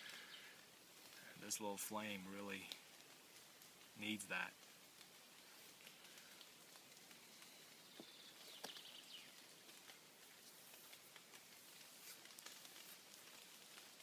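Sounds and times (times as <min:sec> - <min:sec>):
faint ticks and crackles: 0:00.0 - 0:14.0
soft hiss: 0:00.0 - 0:14.0.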